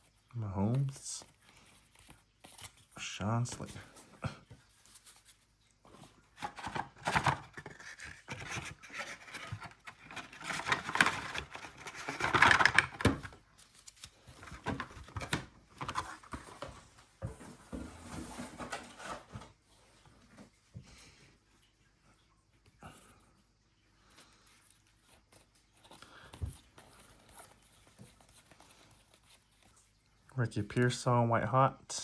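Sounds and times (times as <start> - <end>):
card wrappers rustling and tearing: 4.6 - 16.8.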